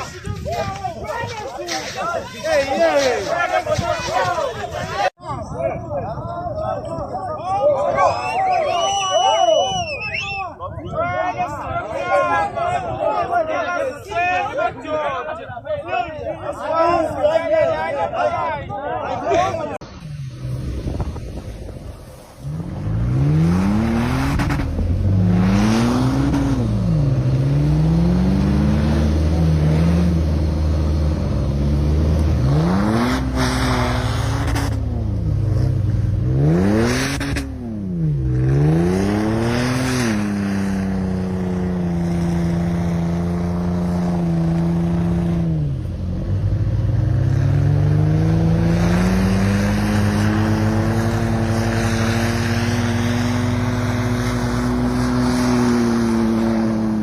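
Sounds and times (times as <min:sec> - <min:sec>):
vehicle engine revving: 0:19.8 - 0:57.0.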